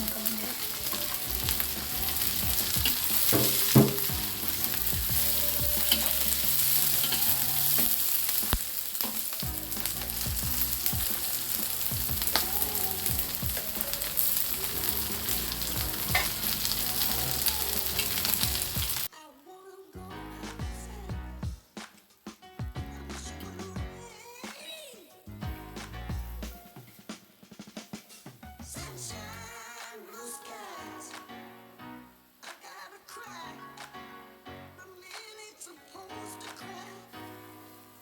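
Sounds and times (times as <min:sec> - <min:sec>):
food sizzling in hot oil: 0:00.0 - 0:19.1, 0:37.2 - 0:38.0
clicks and knocks against pan: 0:03.3 - 0:04.1.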